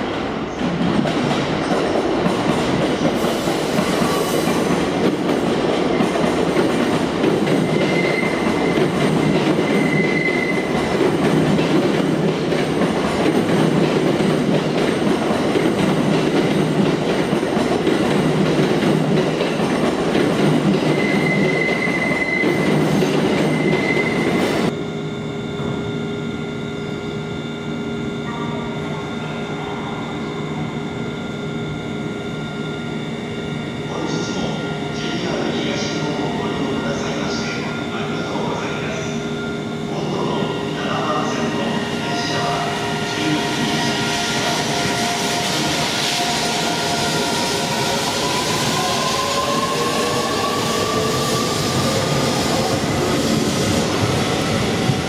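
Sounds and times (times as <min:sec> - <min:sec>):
high-pitched wheel squeals: 0:07.6 - 0:08.8, 0:09.6 - 0:10.8, 0:20.9 - 0:24.7
train wheels rumbling: 0:39.8 - 0:55.0.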